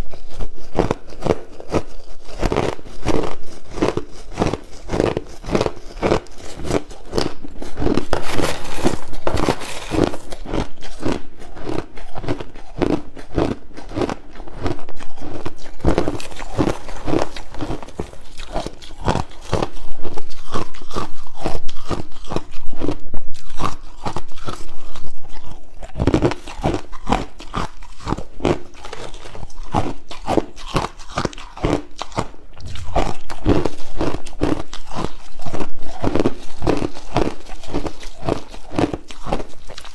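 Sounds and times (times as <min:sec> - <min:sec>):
crushed ice being chewed: 0:00.0 - 0:39.9.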